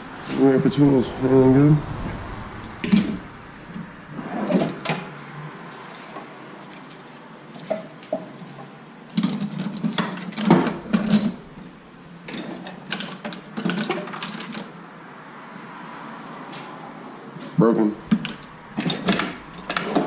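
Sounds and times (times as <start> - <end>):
metal tools clattering: 18.1 - 20.0.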